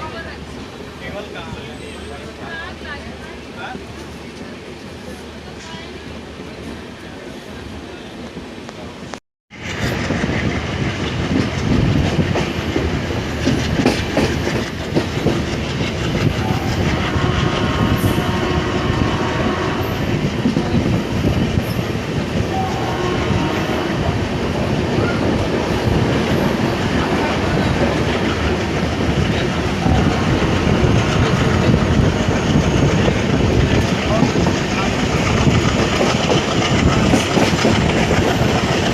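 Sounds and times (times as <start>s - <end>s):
train rumble: 0.0s - 38.9s
train wheels clattering: 9.6s - 18.8s, 20.0s - 38.9s.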